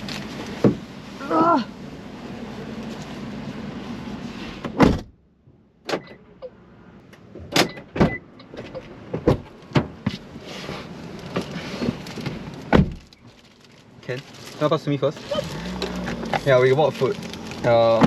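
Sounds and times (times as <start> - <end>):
car air conditioning blowing: 0.0 - 5.2
knocks and clicks in car: 7.4 - 10.2.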